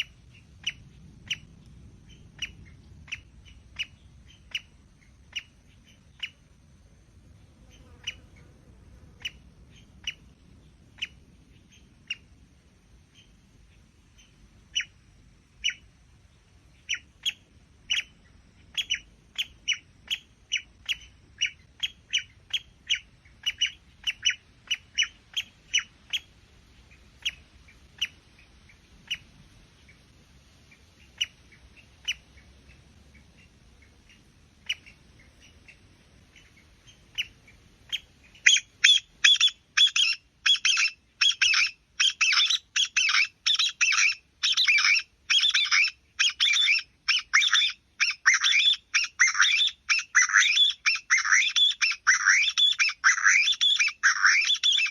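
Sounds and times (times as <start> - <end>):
short sharp bird calls: 30.7 - 54.9.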